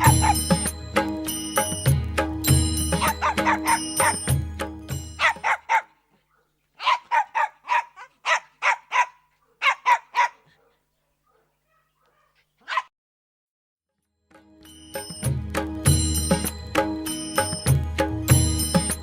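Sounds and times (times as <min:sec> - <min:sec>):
dog barking: 0:00.0 - 0:00.5, 0:03.0 - 0:04.3, 0:05.2 - 0:12.9.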